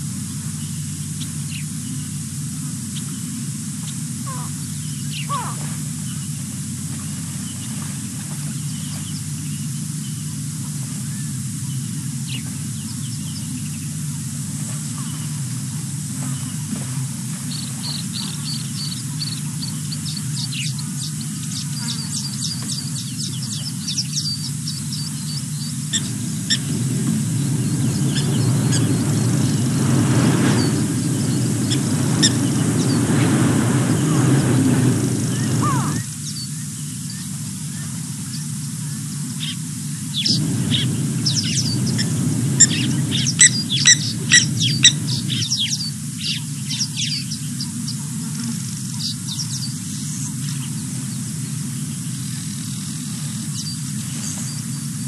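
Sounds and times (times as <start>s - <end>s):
small birds chirping: 0.1s - 55.0s
low rumble: 24.4s - 37.4s, 39.0s - 48.2s.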